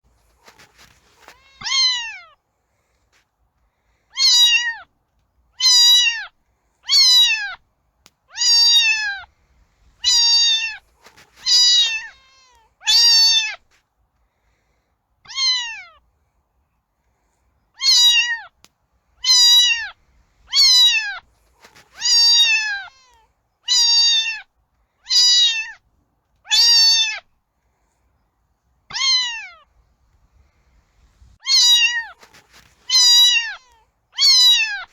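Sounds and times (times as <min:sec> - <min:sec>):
cat meowing: 0:00.4 - 0:02.4, 0:04.1 - 0:04.9, 0:05.6 - 0:06.3, 0:06.9 - 0:07.6, 0:08.3 - 0:09.3, 0:10.0 - 0:13.6, 0:15.3 - 0:16.0, 0:17.8 - 0:18.5, 0:19.2 - 0:24.5, 0:25.1 - 0:25.8, 0:26.5 - 0:27.2, 0:28.9 - 0:29.7, 0:31.4 - 0:34.9.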